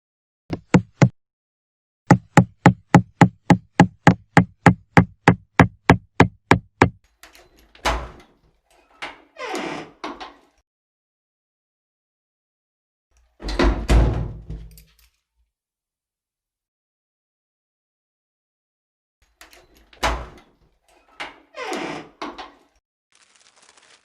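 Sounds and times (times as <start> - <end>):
knocks on a hard surface: 0.5 - 1.1, 2.1 - 7.0
rustling and scraping: 23.2 - 24.0.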